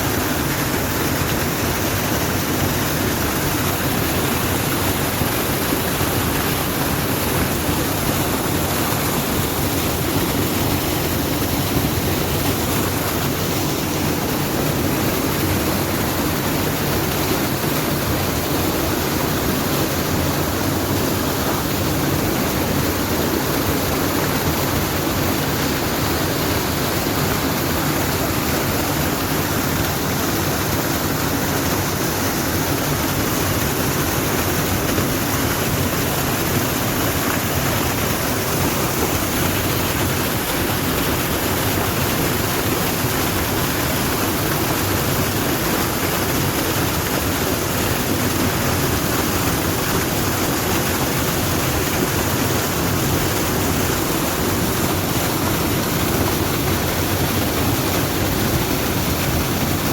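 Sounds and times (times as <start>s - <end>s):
steady rushing noise: 0.0s - 44.6s.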